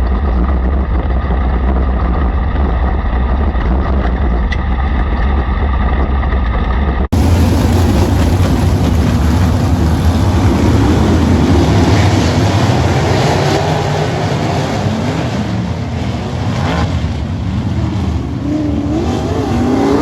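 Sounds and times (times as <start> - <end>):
racing car engines: 7.2 - 20.0.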